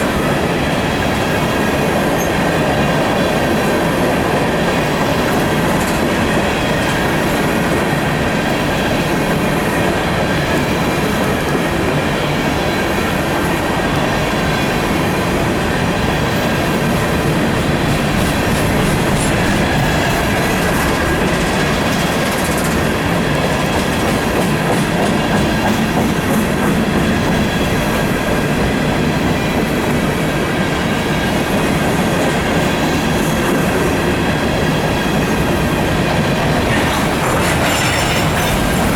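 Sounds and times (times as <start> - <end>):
train wheels clacking over rail: 0.0 - 38.9
thin wheel squeal: 36.7 - 38.9.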